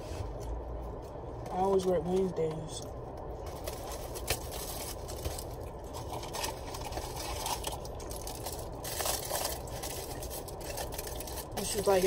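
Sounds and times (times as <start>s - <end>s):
low car cabin hum: 0.0s - 12.0s
chewing clicks and rustles: 2.8s - 12.0s.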